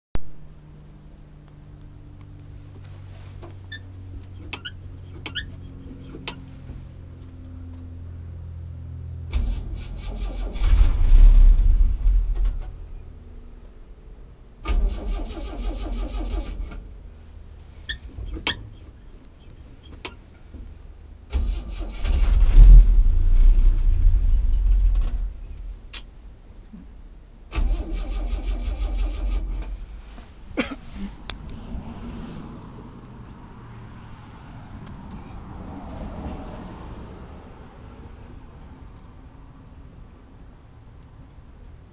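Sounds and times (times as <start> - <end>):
engine cranking on starter: 9.3 - 12.8, 14.6 - 16.9, 21.3 - 25.4, 27.5 - 29.9.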